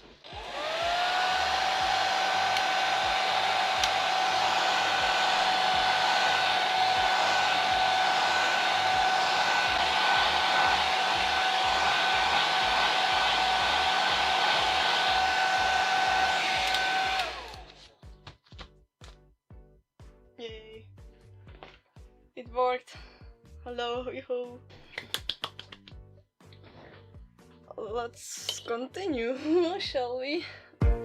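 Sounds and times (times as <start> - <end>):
blow dryer running: 0.0 - 17.8.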